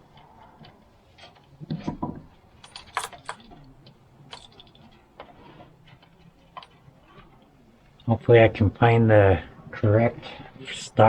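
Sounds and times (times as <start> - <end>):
hand tools clanking: 1.3 - 3.6
metal parts clattering: 2.6 - 3.7, 4.3 - 5.0.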